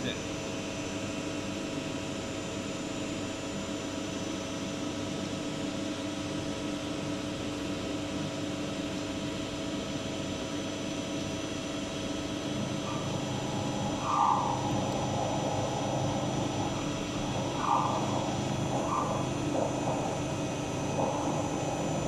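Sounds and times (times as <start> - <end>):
lathe running with whining tones: 10.3 - 22.0.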